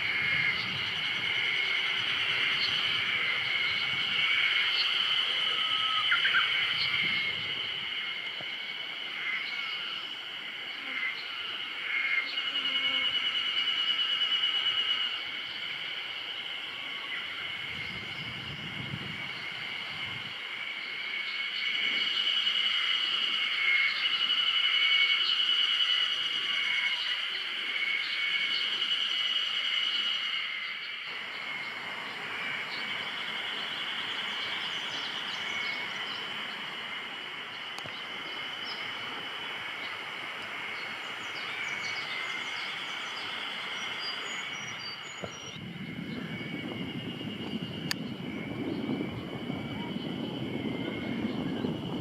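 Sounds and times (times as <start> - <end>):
insects buzzing: 0.0 - 52.0
faint click: 37.8 - 38.0.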